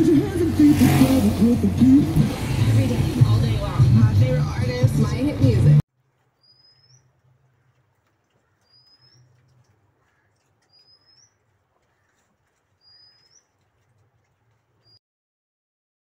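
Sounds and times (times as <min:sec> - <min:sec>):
small bird chirping: 0:06.4 - 0:15.0.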